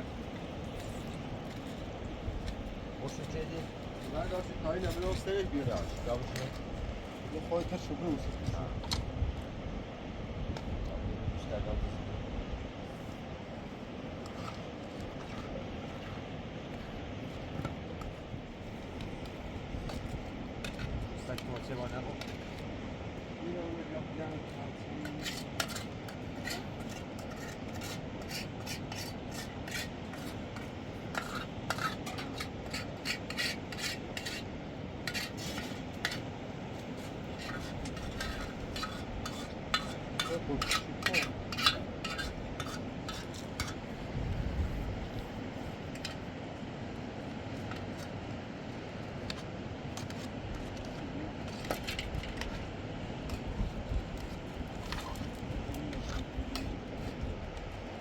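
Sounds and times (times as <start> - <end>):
clicking and scraping: 25.0 - 34.5, 35.1 - 43.9, 49.2 - 57.7.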